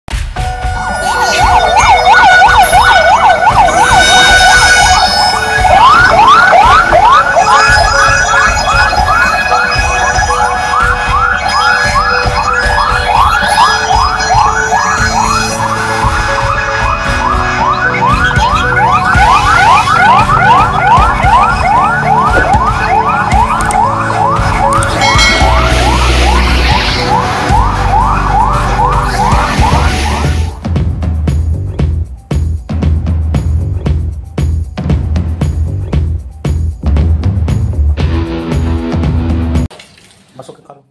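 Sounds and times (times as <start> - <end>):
electronic emergency siren: 0.6 - 30.6.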